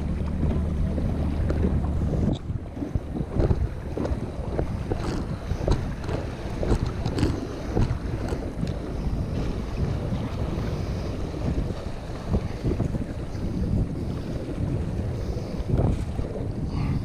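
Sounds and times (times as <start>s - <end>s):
small splashes and knocks: 0.0s - 8.8s
water lapping against kayak: 0.0s - 17.0s
wind buffeting microphone: 0.0s - 17.0s.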